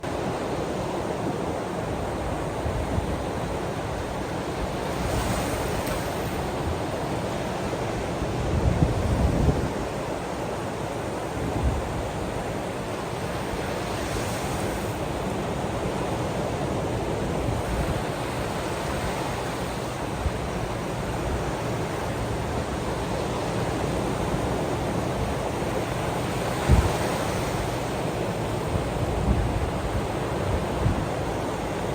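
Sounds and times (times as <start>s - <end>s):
ocean waves on shore: 0.0s - 31.9s
wind buffeting microphone: 1.9s - 10.4s, 15.4s - 31.9s.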